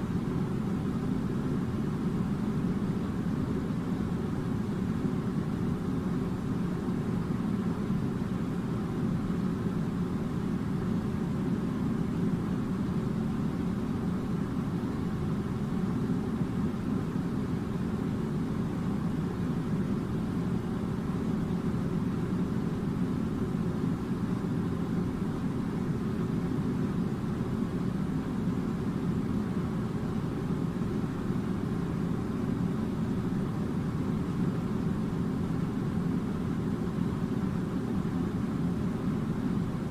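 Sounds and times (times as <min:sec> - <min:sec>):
air conditioner hum and airflow: 0:00.0 - 0:39.9.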